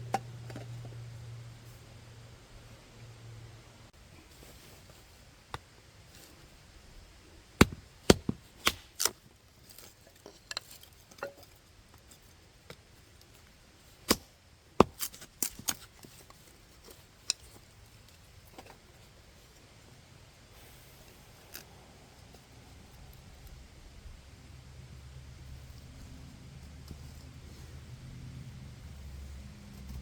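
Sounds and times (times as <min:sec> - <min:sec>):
firewood being chopped: 0:07.6 - 0:09.2, 0:14.0 - 0:15.8.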